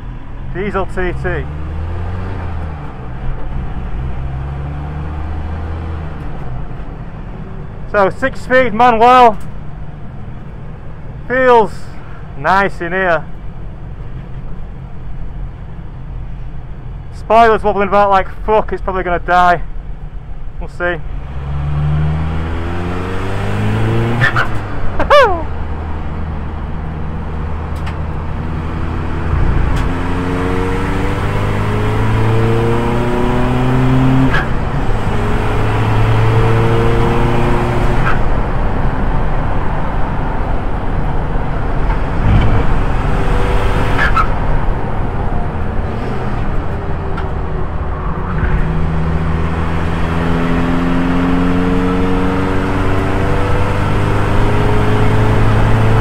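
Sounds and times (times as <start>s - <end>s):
race car engine accelerating: 1.0s - 6.5s, 21.1s - 25.0s, 27.4s - 38.9s, 40.7s - 56.0s.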